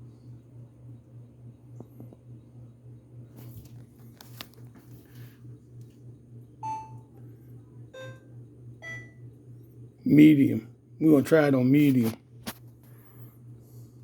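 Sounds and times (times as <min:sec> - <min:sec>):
low steady hum: 0:00.0 - 0:14.0
washing machine beeps: 0:06.6 - 0:07.2, 0:07.9 - 0:09.4.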